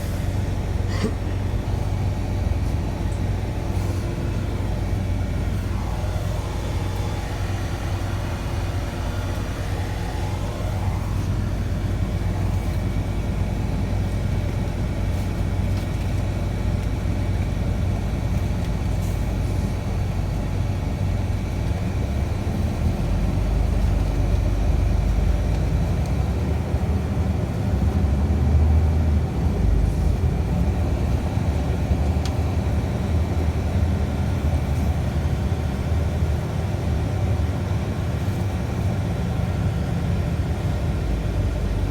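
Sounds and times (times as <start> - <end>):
rising engine whine: 0.0 - 15.0
bus engine and road rumble: 0.0 - 41.9.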